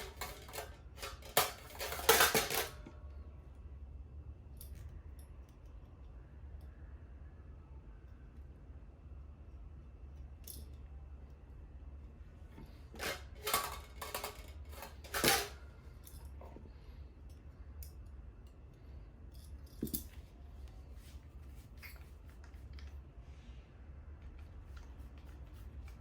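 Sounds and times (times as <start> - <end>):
small metal items clattering: 0.0 - 2.9, 12.7 - 16.3
low steady hum: 0.0 - 26.0.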